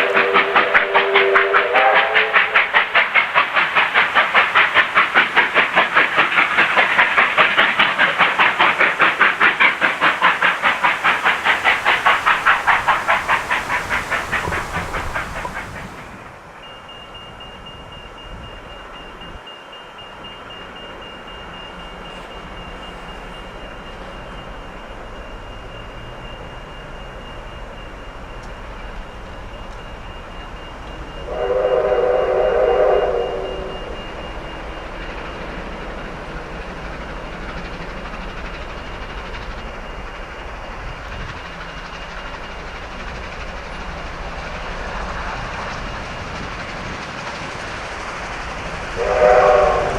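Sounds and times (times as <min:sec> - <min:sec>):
train whistle chord: 0:00.0 - 0:02.8, 0:31.2 - 0:34.3, 0:49.0 - 0:49.9
steam train rumbling: 0:00.0 - 0:49.9.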